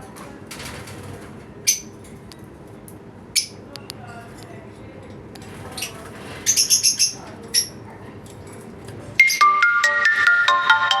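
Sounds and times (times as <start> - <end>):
parrots chirping: 5.7 - 7.8
music with plinking melody: 9.2 - 11.0.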